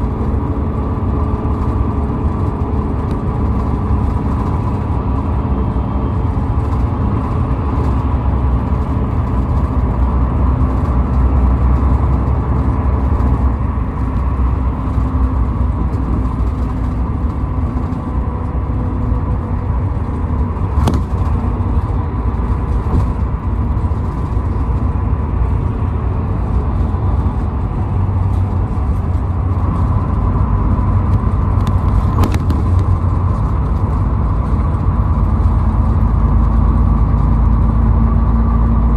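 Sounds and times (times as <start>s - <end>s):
car engine and tyre road noise: 0.0s - 38.9s.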